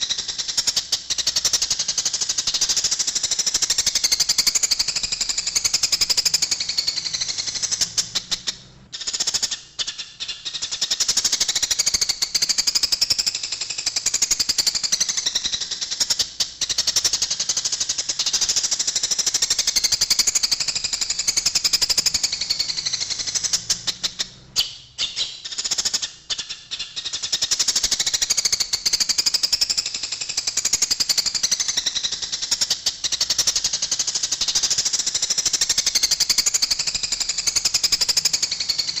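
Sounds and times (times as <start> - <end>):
sparrows chattering: 0.0 - 13.3, 14.2 - 39.0.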